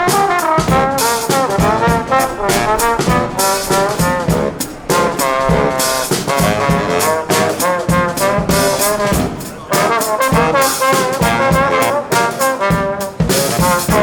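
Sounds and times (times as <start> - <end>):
steady drum beat: 0.0 - 14.0
trumpets and trombones in harmony: 0.0 - 14.0.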